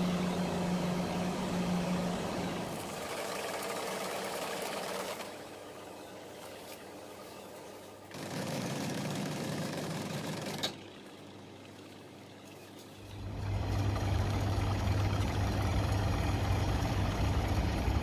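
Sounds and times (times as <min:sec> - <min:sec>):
low machine hum: 0:00.0 - 0:03.2, 0:09.5 - 0:18.0
noisy factory machinery: 0:00.0 - 0:18.0.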